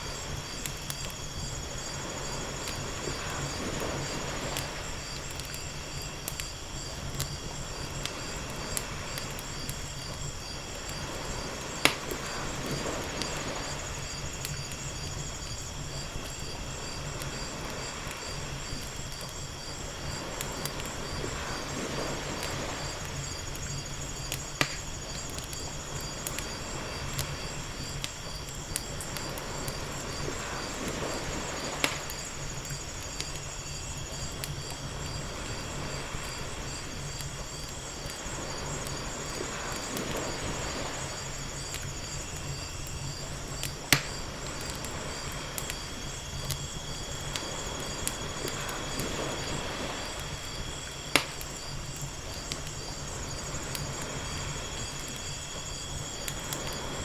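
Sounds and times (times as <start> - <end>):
wood fire crackling: 0.0 - 57.0
ocean waves washing: 1.6 - 5.2, 19.9 - 23.5, 29.1 - 32.6, 37.9 - 41.7, 47.4 - 51.4.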